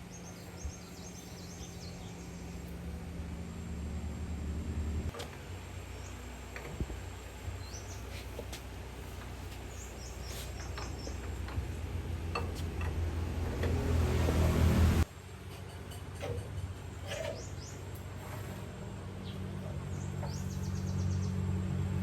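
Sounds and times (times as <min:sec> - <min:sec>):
birds chirping: 0:00.0 - 0:03.9, 0:07.3 - 0:12.4, 0:19.2 - 0:21.6
diesel engine throbbing: 0:10.1 - 0:15.1.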